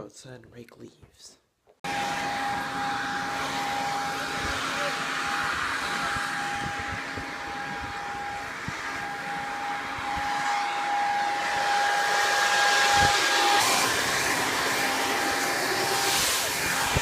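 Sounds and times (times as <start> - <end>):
machine drone with whine: 1.9 - 14.0.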